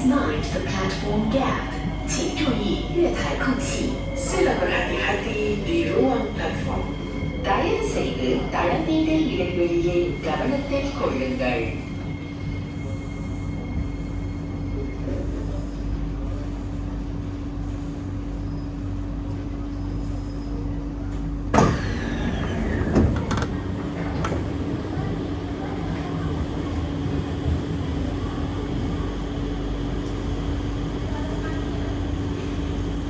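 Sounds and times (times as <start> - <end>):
train equipment humming: 0.0 - 33.0.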